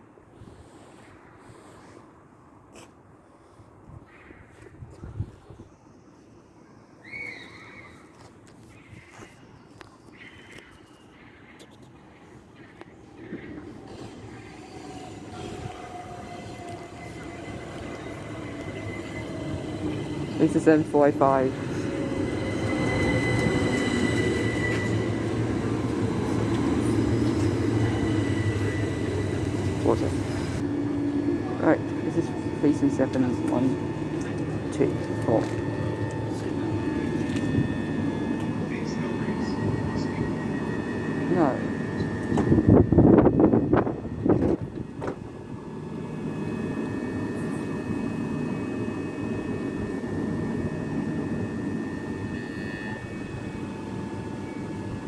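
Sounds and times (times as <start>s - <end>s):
electric train running past: 12.8s - 55.0s.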